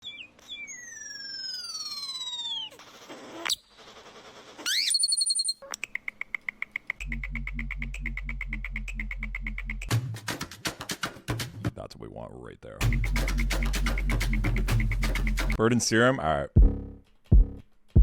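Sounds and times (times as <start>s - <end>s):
fast repeating chirp: 0.0s - 2.8s, 3.5s - 9.4s
electronic sweeps: 0.0s - 5.6s
bird-like call sliding down: 4.2s - 5.8s
pulsing synth bass beat: 7.0s - 10.1s, 12.8s - 15.6s, 16.6s - 17.6s.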